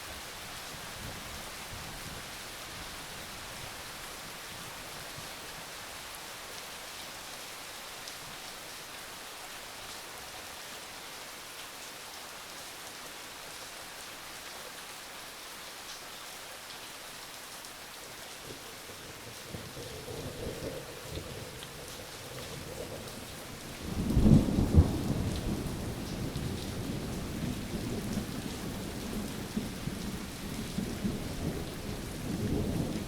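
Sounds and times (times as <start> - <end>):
steady rain: 0.0 - 33.0.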